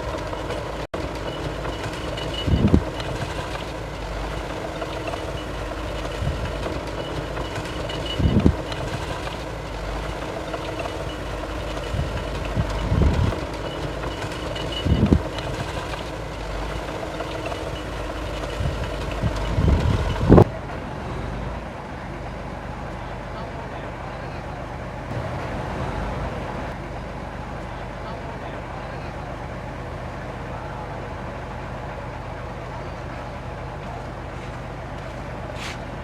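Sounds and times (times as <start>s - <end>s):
faint high beeping tone: 0.0s - 20.4s
diesel machinery engines running: 0.0s - 36.0s
low engine surges and knocks: 0.0s - 36.0s.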